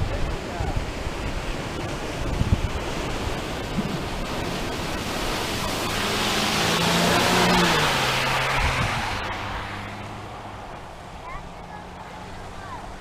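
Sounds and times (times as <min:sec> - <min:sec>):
steady rushing noise: 0:00.0 - 0:13.0
vehicle passing: 0:02.7 - 0:13.0.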